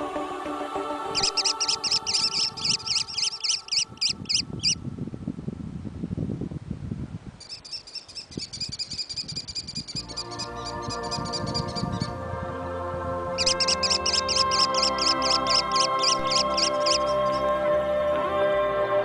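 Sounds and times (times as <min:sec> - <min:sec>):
bird calling sharp notes: 0:01.1 - 0:04.8, 0:13.4 - 0:17.5
bird trill: 0:01.1 - 0:04.8, 0:07.4 - 0:12.1, 0:13.4 - 0:17.5.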